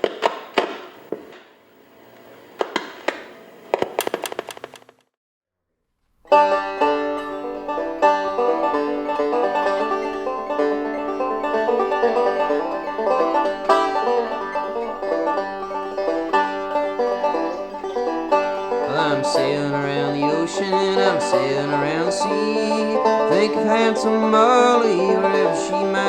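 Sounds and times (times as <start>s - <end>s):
banjo picking folk tune: 6.3s - 26.0s
person singing: 18.8s - 26.0s.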